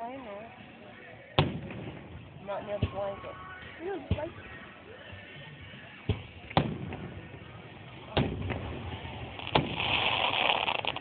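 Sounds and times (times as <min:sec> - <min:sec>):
firework crackling: 0:06.1 - 0:11.0
firework shells bursting: 0:06.1 - 0:11.0.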